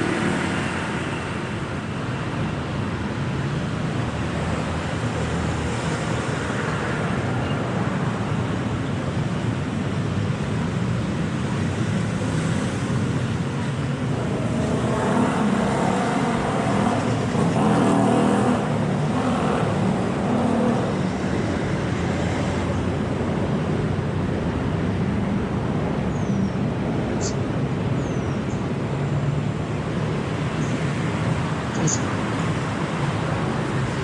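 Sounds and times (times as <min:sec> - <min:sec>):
city road traffic: 0:00.0 - 0:34.0
vehicle passing close: 0:13.8 - 0:23.8.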